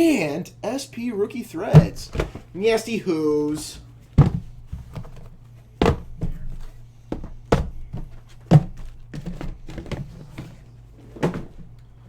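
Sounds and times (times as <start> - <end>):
boxes knocking on a table: 1.7 - 2.5, 3.5 - 11.8.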